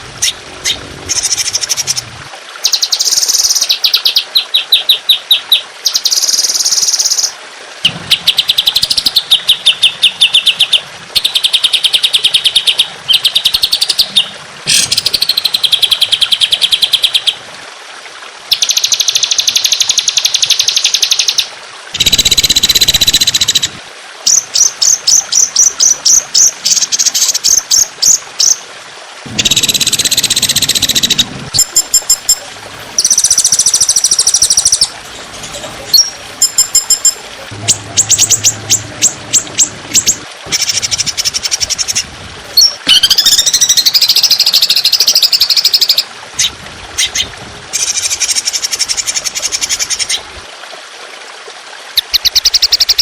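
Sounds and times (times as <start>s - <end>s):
bird singing fast trills: 2.6s - 17.4s, 29.3s - 32.4s, 33.0s - 35.0s, 35.9s - 42.0s, 42.6s - 47.2s.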